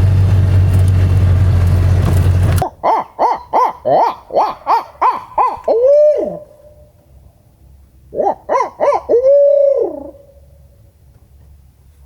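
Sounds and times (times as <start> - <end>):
owl hooting: 2.6 - 6.9, 8.1 - 10.6.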